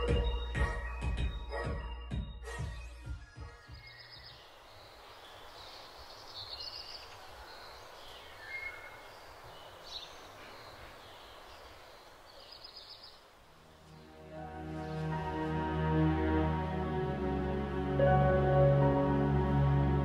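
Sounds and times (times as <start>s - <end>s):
steady hiss: 4.4s - 16.9s.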